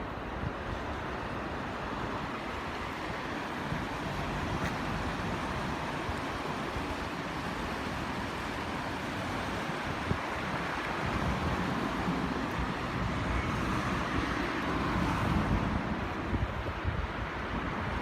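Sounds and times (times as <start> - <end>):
wind on microphone: 9.2 - 18.0.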